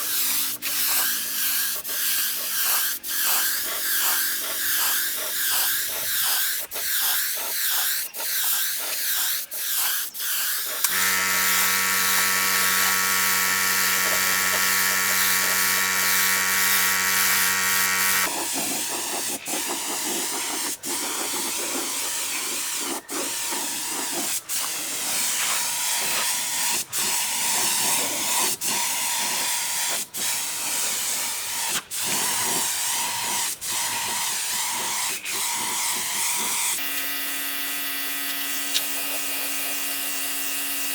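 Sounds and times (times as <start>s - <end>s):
hissing air tool: 0.0s - 37.1s, 38.3s - 40.9s
steady motor hum: 10.8s - 18.3s.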